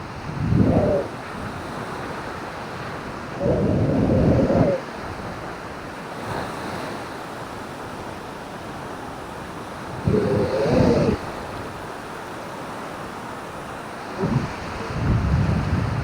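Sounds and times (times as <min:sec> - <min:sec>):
wind buffeting microphone: 0:00.0 - 0:05.8, 0:09.7 - 0:11.8, 0:14.1 - 0:16.0
surf washing on beach: 0:00.0 - 0:16.0.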